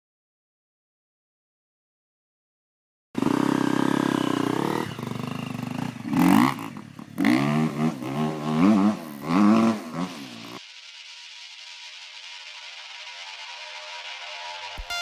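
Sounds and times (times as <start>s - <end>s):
motocross bike engine revving: 3.2s - 10.6s.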